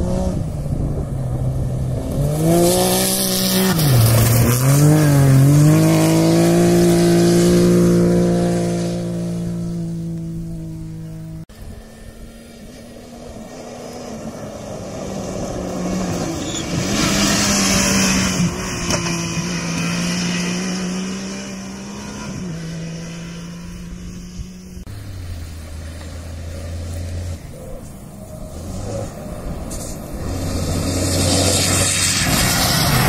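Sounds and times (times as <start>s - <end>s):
rally car engine at high revs: 0.0s - 25.0s, 25.9s - 33.0s
tyres on gravel: 2.8s - 7.5s, 24.9s - 33.0s.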